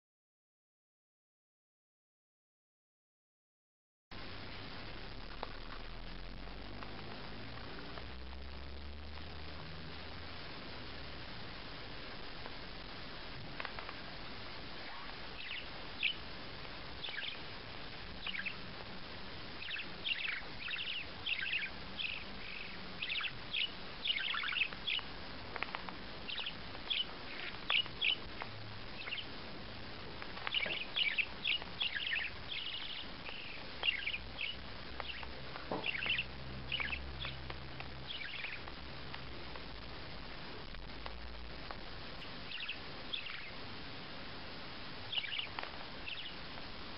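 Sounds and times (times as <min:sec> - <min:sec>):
background hiss: 0:04.1 - 0:46.9
bird chirping: 0:13.6 - 0:29.4, 0:30.0 - 0:39.3, 0:42.2 - 0:43.7, 0:45.0 - 0:46.6.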